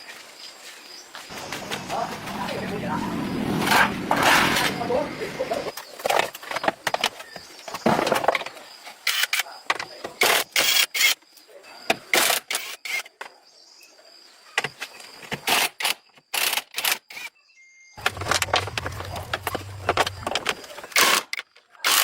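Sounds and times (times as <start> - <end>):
scraping sounds: 1.3 - 6.4.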